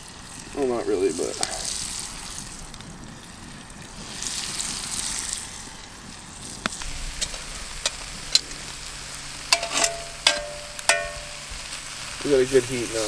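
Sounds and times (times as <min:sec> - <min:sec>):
meat sizzling in a pan: 0:00.0 - 0:13.0
sharp pops: 0:09.5 - 0:11.9.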